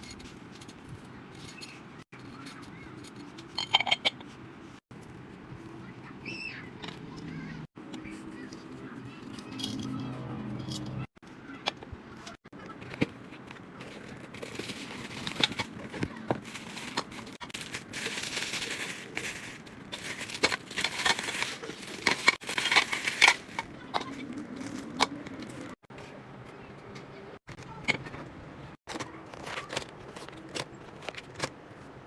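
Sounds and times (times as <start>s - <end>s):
plastic packaging crinkling: 13.7s - 25.7s.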